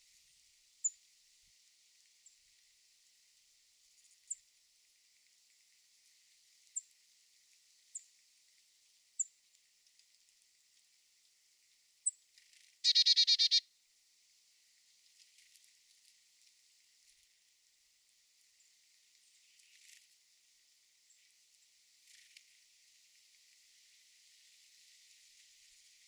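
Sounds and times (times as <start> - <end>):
bird trill: 12.8 - 13.6
songbirds chirping: 12.8 - 13.6.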